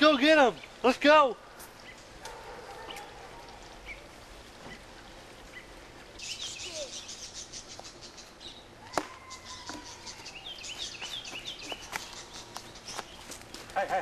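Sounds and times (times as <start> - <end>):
bird singing high chirps: 5.5 - 13.3.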